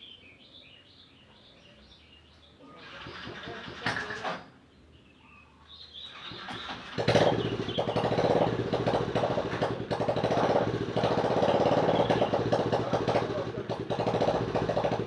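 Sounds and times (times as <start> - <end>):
motorcycle engine putter: 6.3 - 15.0.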